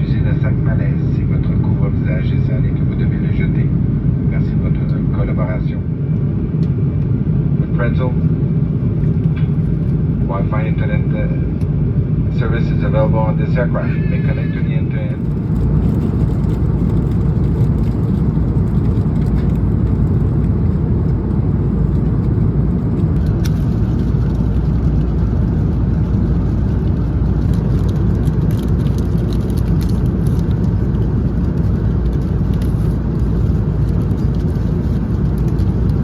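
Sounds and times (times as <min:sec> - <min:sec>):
aircraft cabin engine rumble: 0:00.0 - 0:36.0.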